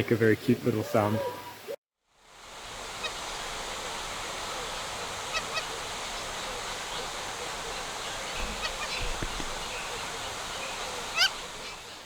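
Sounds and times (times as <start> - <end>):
background hiss: 0.0 - 12.0
ducks calling: 2.8 - 12.0.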